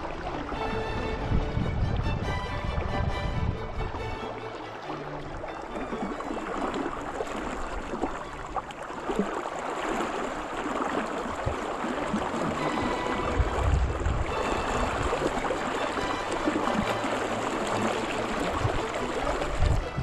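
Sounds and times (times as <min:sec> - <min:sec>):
river water rushing: 0:00.0 - 0:20.0
low rumble: 0:00.7 - 0:04.5.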